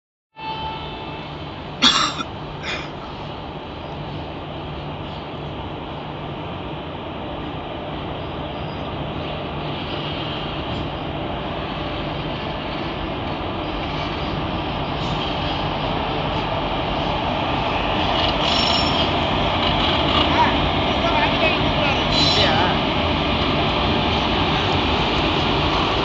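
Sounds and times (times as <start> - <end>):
higher-pitched train tones: 0.3 - 4.2, 17.6 - 23.1
train wheels rumbling on rail: 0.9 - 26.0.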